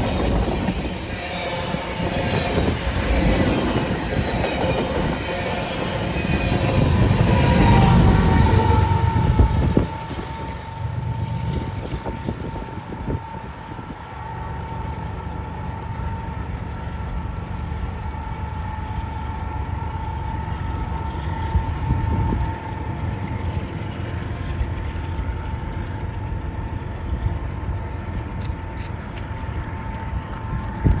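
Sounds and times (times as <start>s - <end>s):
high-pitched wheel squeal: 0.0s - 14.4s
freight train rumbling past: 0.0s - 31.0s.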